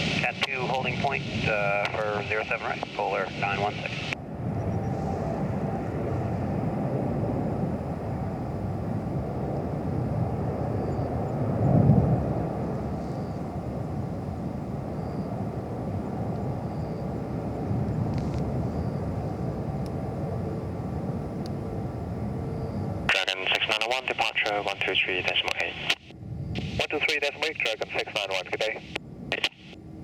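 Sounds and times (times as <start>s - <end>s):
distant jet aircraft rumble: 0.0s - 30.0s.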